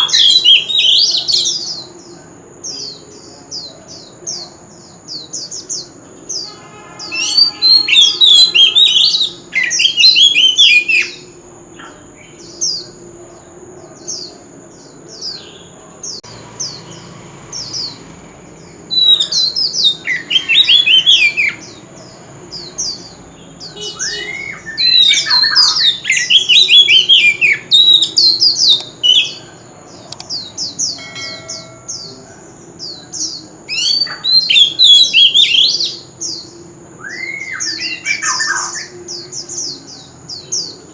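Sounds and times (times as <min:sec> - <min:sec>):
bird singing: 0:00.0 - 0:40.9
steady high whine: 0:28.8 - 0:33.7.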